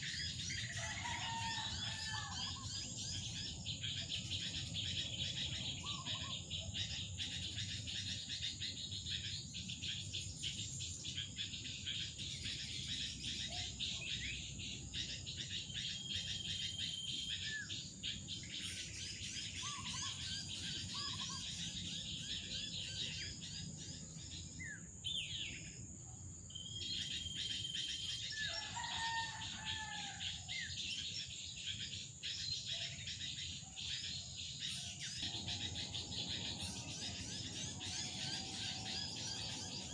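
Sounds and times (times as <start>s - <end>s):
small birds chirping: 0.0s - 25.9s, 26.5s - 39.9s
high-pitched insect drone: 35.2s - 39.9s.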